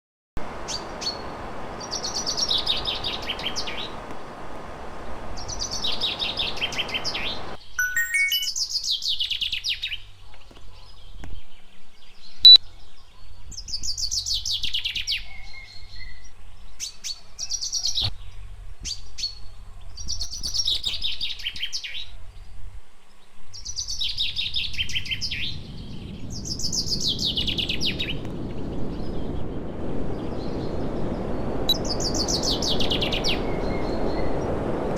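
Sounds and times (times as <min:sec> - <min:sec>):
steady rushing noise: 0:00.4 - 0:07.6, 0:25.6 - 0:34.9
songbird trilling: 0:05.4 - 0:08.5, 0:20.2 - 0:21.1.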